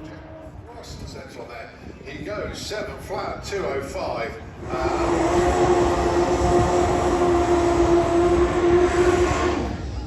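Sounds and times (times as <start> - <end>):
motorcycle engine at high revs: 4.6 - 9.7.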